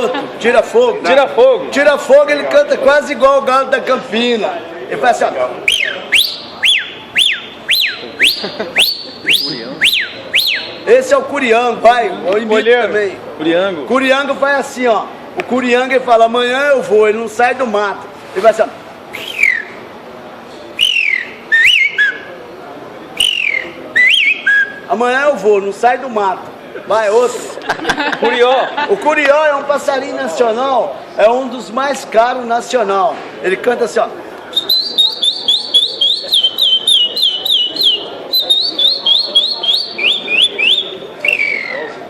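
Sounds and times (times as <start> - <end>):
man whistling bird call: 5.7 - 10.8, 19.1 - 19.8, 20.8 - 22.3, 23.2 - 24.9, 34.5 - 42.0.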